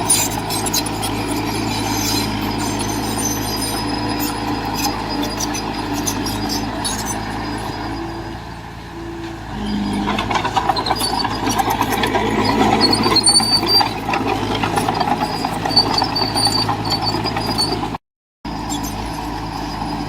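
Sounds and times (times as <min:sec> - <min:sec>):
bulldozer diesel engine: 0:00.0 - 0:20.0
high squeals: 0:00.0 - 0:20.0
clanking rattle: 0:09.8 - 0:18.0.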